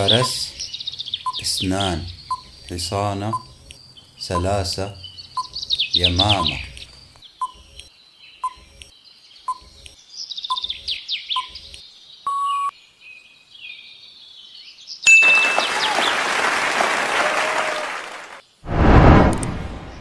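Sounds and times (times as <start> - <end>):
birdsong chirping: 0.0 - 16.2
loud rushing noise: 18.7 - 20.0.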